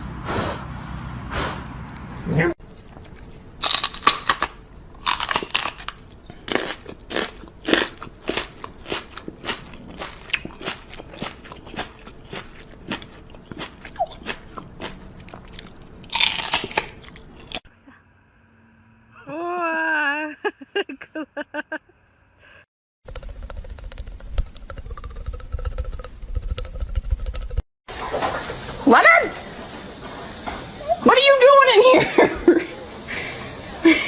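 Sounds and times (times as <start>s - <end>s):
animal crunching food: 2.7s - 17.6s, 23.1s - 27.6s.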